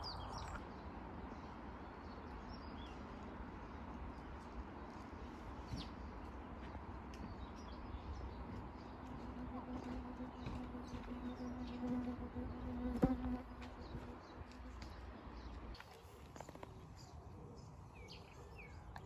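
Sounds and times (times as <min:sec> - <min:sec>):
insect buzzing: 0:09.3 - 0:13.6.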